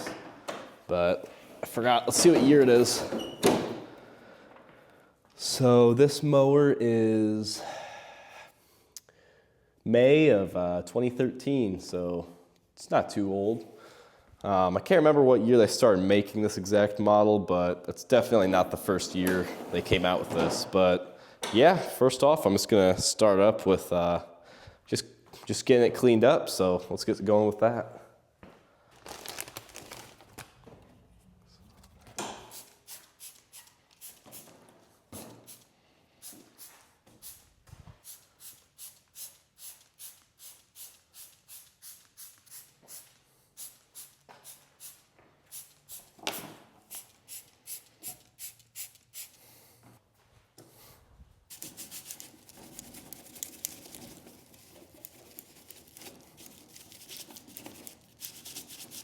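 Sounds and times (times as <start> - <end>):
continuous scrubbing rub: 51.6 - 59.0.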